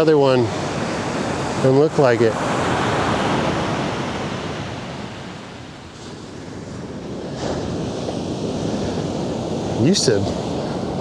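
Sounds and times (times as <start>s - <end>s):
surf breaking on beach: 0.0s - 11.0s
wind on microphone: 0.0s - 11.0s.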